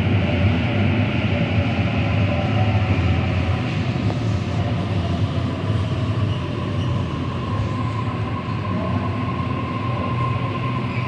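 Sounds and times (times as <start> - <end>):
train rolling rumble: 0.0 - 11.0.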